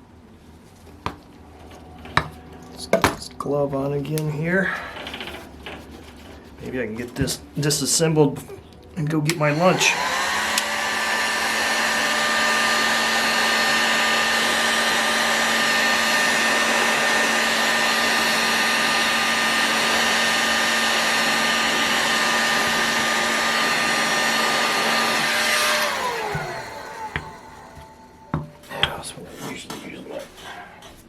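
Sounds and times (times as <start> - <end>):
heat gun fan whine: 1.0 - 8.2, 9.0 - 30.2
motor spinning down: 9.4 - 28.4.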